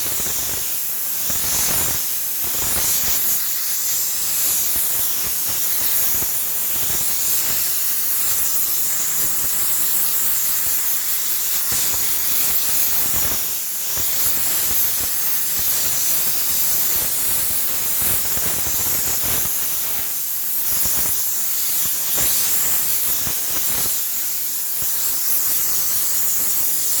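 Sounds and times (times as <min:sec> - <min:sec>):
steam cleaner hissing: 0:00.0 - 0:27.0.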